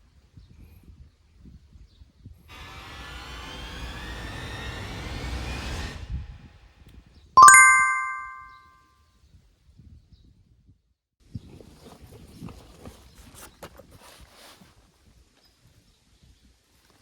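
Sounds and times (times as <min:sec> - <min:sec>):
bright bell ding: 0:07.4 - 0:08.5.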